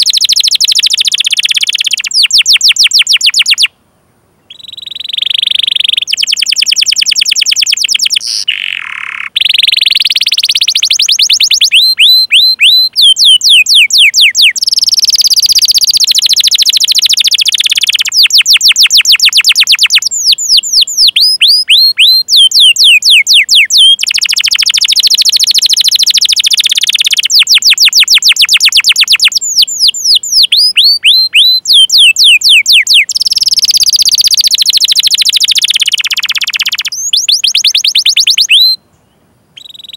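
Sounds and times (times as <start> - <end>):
canary singing: 0.0 - 3.8, 4.5 - 38.9, 39.6 - 39.9.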